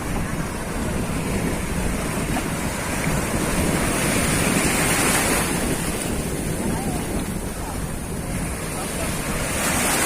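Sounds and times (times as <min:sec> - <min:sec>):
sea waves: 0:00.0 - 0:10.0
wind buffeting microphone: 0:00.0 - 0:10.0.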